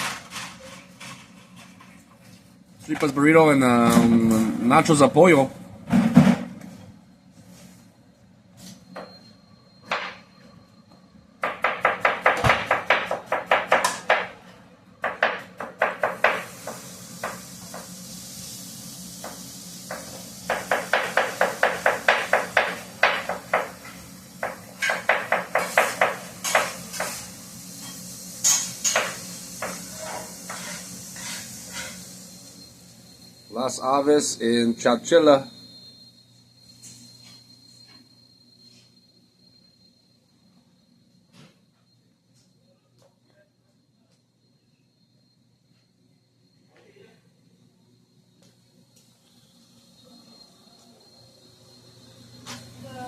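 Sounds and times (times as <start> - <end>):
steady hiss: 15.8 - 36.2.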